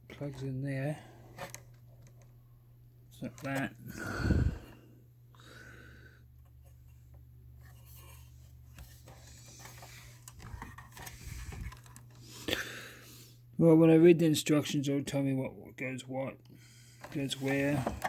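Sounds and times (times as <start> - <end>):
steady low hum: 0.0 - 18.0
handling noise and scraping: 0.1 - 2.4, 3.1 - 3.8, 6.4 - 12.4, 17.0 - 18.0.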